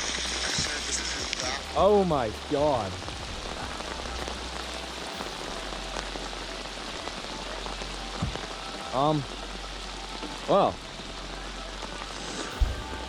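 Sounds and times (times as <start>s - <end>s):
heavy rain pelting down: 0.0s - 13.0s
low thump: 12.6s - 13.0s.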